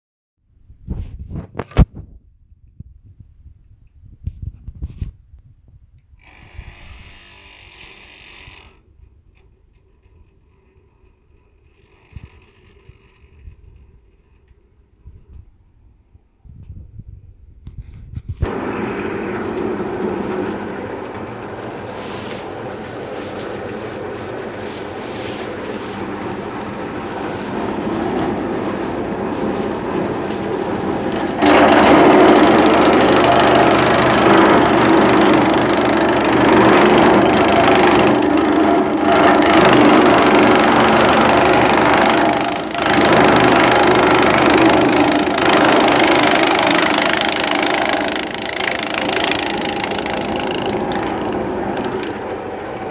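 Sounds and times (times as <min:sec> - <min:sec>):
small petrol engine running: 0:18.4 - 0:52.9.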